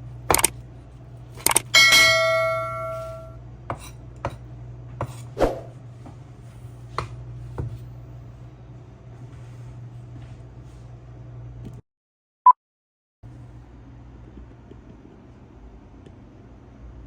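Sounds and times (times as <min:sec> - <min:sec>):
steady low hum: 0:00.0 - 0:11.7
struck metal pan ringing: 0:01.7 - 0:03.4
kitchenware knocking and clinking: 0:01.7 - 0:04.4.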